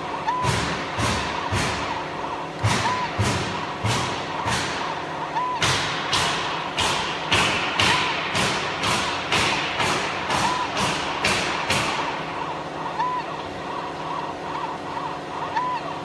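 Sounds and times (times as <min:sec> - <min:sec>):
machine hum: 0:00.0 - 0:16.0
sharp knocks: 0:02.6 - 0:04.9, 0:05.6 - 0:12.2.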